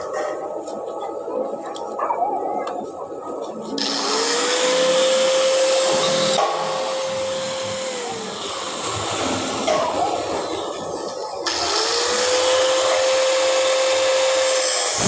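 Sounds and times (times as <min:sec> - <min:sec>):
angle grinder whine: 0:03.8 - 0:10.8, 0:11.5 - 0:15.0.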